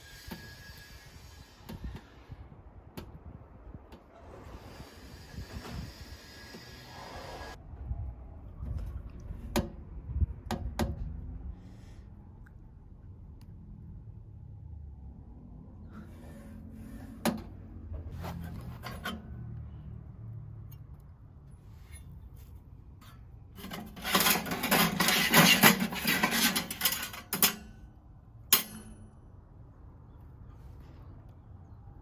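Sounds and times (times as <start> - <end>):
scraping and rubbing of packaging: 18.1 - 19.1, 23.6 - 27.2.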